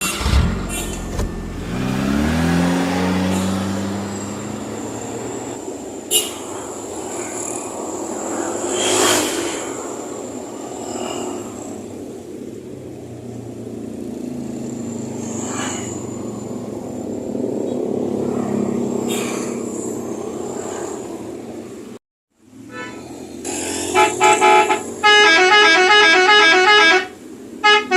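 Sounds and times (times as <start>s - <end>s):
vehicle motor humming: 0.0s - 8.9s.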